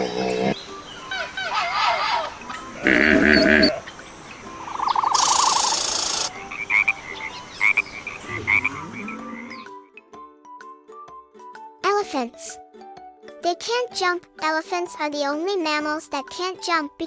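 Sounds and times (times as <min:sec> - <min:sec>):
animal croaking and trilling: 0:00.0 - 0:03.9, 0:04.5 - 0:09.7.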